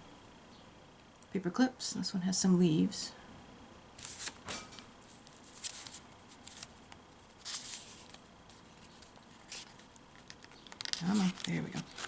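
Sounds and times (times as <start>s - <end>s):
paper rustling: 4.0s - 12.0s.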